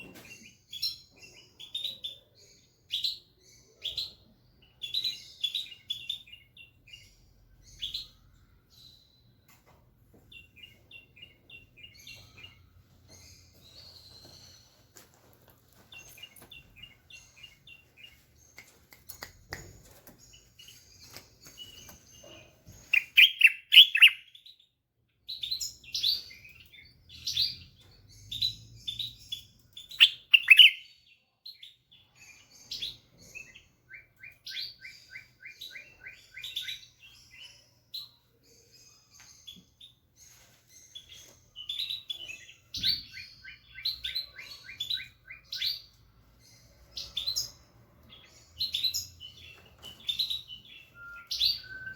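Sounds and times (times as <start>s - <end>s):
bulbul singing: 22.8s - 24.6s, 25.3s - 30.9s.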